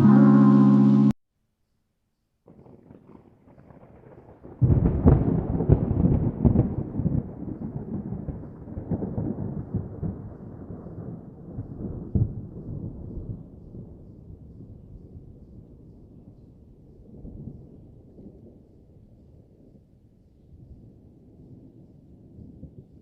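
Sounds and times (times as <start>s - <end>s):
thunder crack and rumble: 2.5s - 18.8s.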